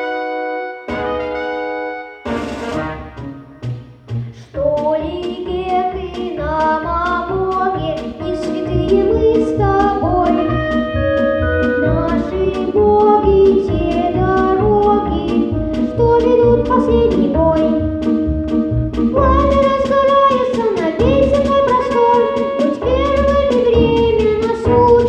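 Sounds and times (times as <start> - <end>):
instrumental accompaniment with beat: 0.0 - 25.0
person singing: 4.3 - 18.5, 19.1 - 25.0.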